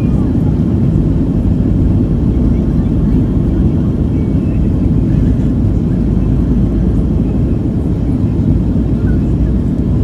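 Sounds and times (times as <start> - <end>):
jet engine rumble in cabin: 0.0 - 10.0.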